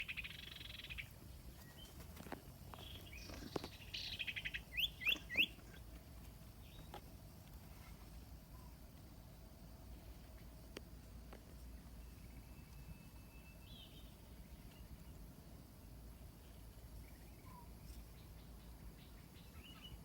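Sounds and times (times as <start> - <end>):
small bird calling: 0.0 - 2.0, 2.7 - 6.0, 16.4 - 20.0.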